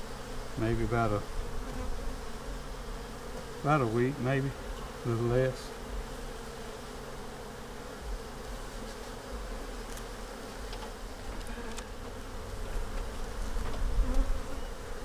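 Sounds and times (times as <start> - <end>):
bees buzzing: 0.0 - 15.0
faint clicks of hive frames: 3.3 - 3.5, 8.1 - 14.6.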